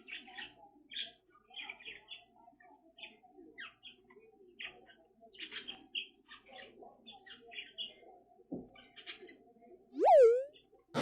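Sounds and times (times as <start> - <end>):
parakeet chirping: 10.0 - 10.5.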